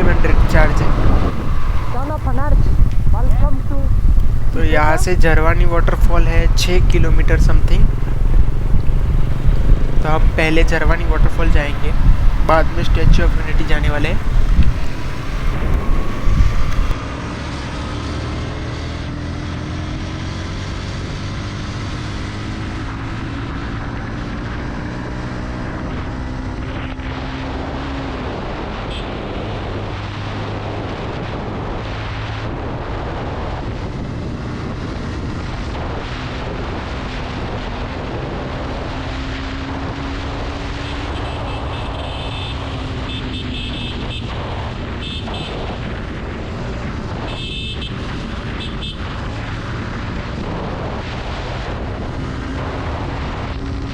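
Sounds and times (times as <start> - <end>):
motorcycle engine running: 0.0 - 26.6
wind noise on microphone: 0.0 - 53.9.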